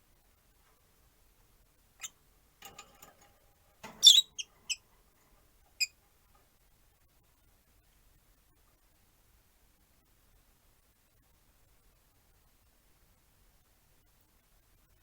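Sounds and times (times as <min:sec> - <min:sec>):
lovebirds chirping: 0:04.0 - 0:04.8.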